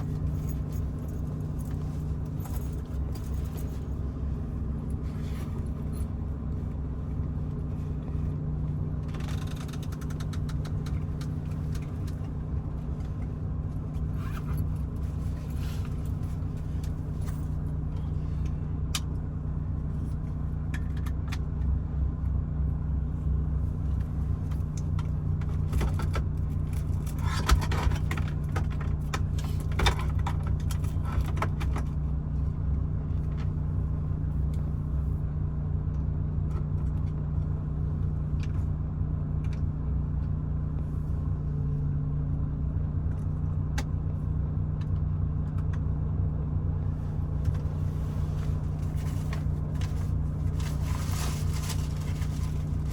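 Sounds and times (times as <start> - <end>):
truck engine droning: 0.0 - 52.9
small clicks and rattles: 7.6 - 13.4.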